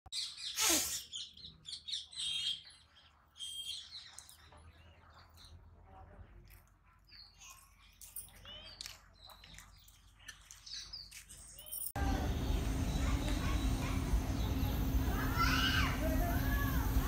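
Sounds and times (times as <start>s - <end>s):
small birds chirping: 0.1s - 17.0s
faint low hum: 12.0s - 17.0s.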